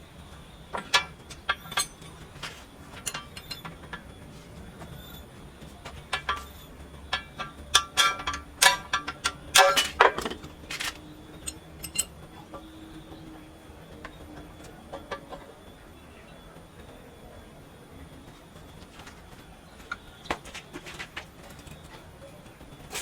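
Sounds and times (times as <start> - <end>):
metal pieces clanking: 0.8 - 4.0, 6.1 - 12.1.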